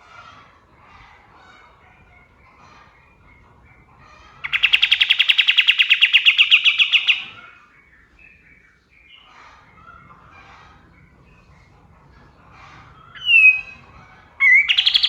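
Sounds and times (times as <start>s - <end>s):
faint bird chirps: 2.9s - 10.0s, 13.0s - 15.0s
bulbul singing rapid trill: 4.5s - 7.3s, 13.2s - 13.8s, 14.4s - 15.0s.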